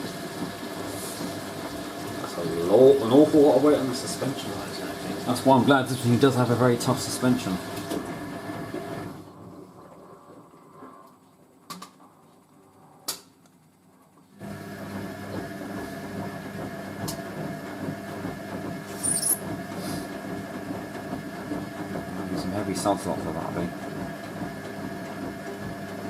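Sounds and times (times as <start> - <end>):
washing machine drum humming: 0.0 - 26.0.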